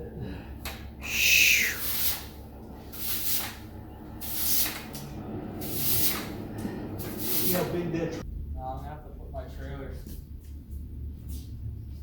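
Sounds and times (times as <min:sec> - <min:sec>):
swishing hiss: 0:01.0 - 0:04.9, 0:05.6 - 0:06.4, 0:07.0 - 0:07.8.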